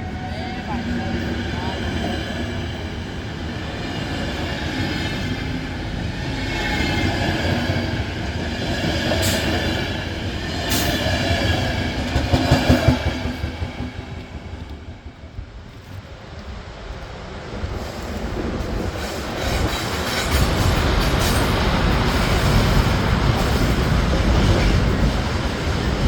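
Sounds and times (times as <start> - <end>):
train wheels whining on rails: 0.0 - 26.0
sharp clicks of train wheels: 4.1 - 26.0.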